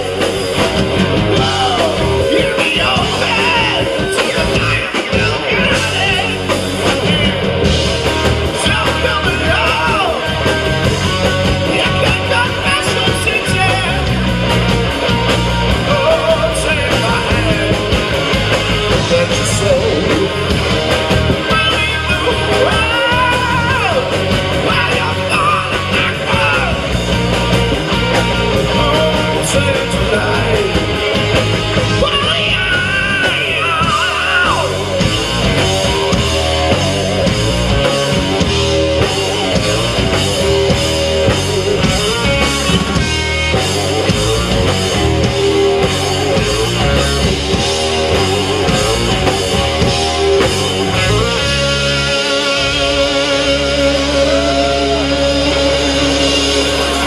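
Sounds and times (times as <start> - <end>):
bass guitar: 0.0 - 57.0
drums: 0.0 - 57.0
electric guitars: 0.0 - 57.0
person singing: 1.3 - 7.5, 8.5 - 10.6, 18.9 - 20.5, 28.2 - 31.2, 31.9 - 35.1, 45.1 - 57.0.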